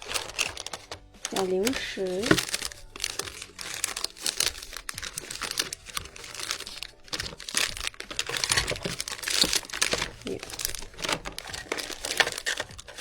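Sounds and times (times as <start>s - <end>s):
plastic packets crinkling: 0.0s - 13.0s.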